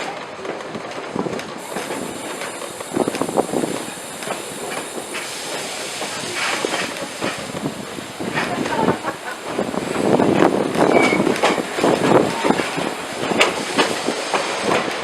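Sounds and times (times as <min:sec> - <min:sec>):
train wheel clacks: 0:00.0 - 0:15.0
steady high hiss: 0:01.6 - 0:15.0.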